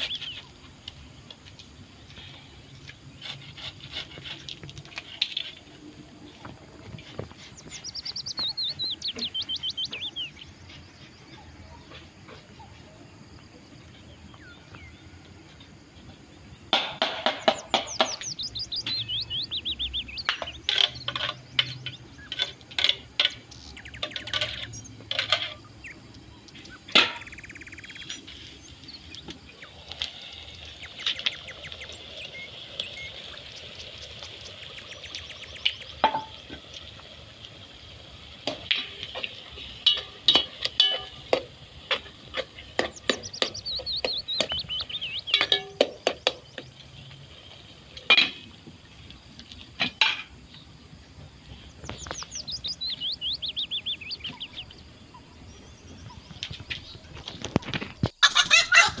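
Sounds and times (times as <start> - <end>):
birds singing: 0.0 - 59.0
sharp clicks and knocks: 16.7 - 19.1
fast falling bird trill: 58.2 - 59.0.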